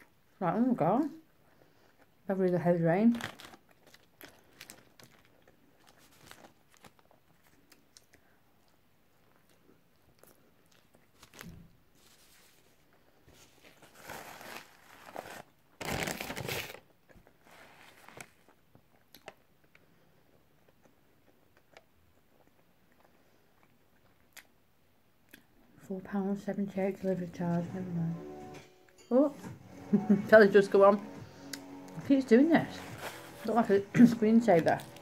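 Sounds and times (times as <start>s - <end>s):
person chewing food: 1.3s - 2.2s, 3.3s - 11.4s, 16.8s - 25.8s, 31.3s - 32.0s, 34.6s - 35.0s
paper wrappers rustling: 3.0s - 7.6s, 10.8s - 18.6s, 32.0s - 35.0s.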